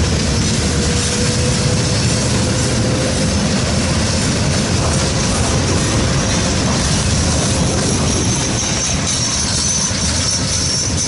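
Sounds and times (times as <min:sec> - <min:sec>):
steel wheels rumbling on rail: 0:00.0 - 0:11.0
faint high squeal: 0:08.0 - 0:11.0.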